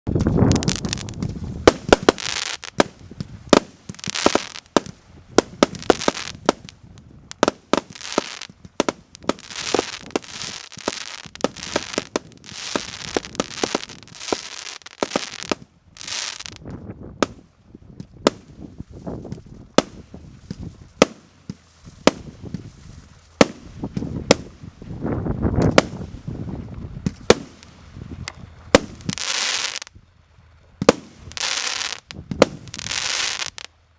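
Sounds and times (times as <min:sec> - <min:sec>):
firework bangs: 0:00.1 - 0:06.7, 0:07.3 - 0:16.6, 0:19.8 - 0:22.6, 0:23.4 - 0:24.6, 0:25.6 - 0:26.1, 0:27.0 - 0:27.8, 0:28.7 - 0:29.9, 0:30.8 - 0:33.7
firework hissing and crackling: 0:00.2 - 0:16.6, 0:28.7 - 0:29.9, 0:30.8 - 0:33.7.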